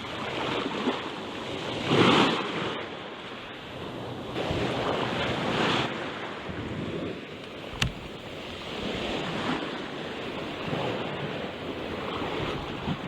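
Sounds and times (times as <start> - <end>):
sea waves washing on shore: 0.0 - 13.0
wind buffeting microphone: 3.8 - 13.0.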